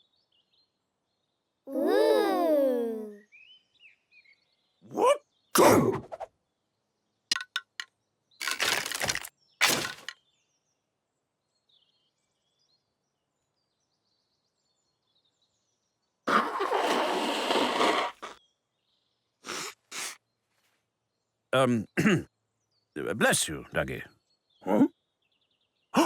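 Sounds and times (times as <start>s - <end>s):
cartoon cracking bursts: 8.4s - 10.1s, 16.3s - 18.3s, 19.5s - 20.2s.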